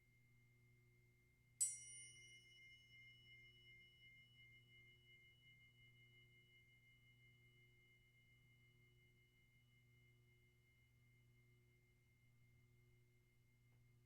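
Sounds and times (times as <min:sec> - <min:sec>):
small metal chime ringing: 0:01.6 - 0:04.5.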